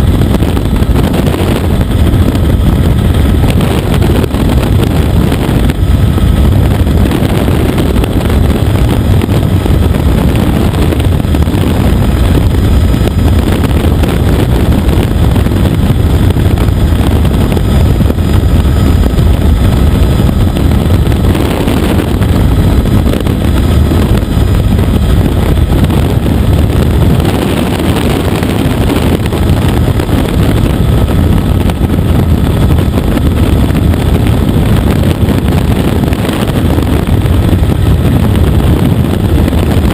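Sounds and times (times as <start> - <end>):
helicopter engine and rotor noise: 0.0 - 39.9.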